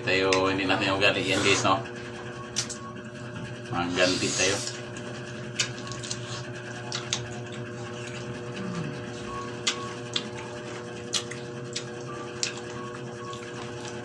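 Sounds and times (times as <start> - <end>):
low electrical hum: 0.0 - 14.0
chewing mouth clicks and smacks: 4.9 - 8.3, 9.5 - 14.0.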